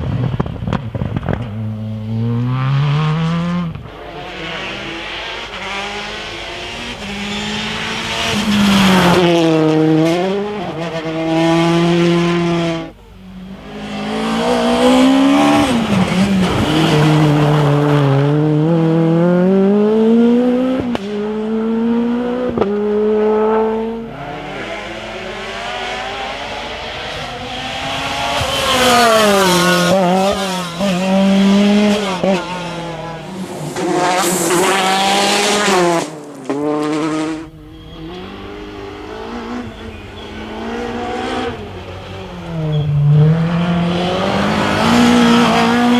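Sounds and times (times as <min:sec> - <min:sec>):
rally car engines revving: 0:00.0 - 0:45.9
tyre squeal: 0:37.5 - 0:41.0, 0:42.6 - 0:43.3.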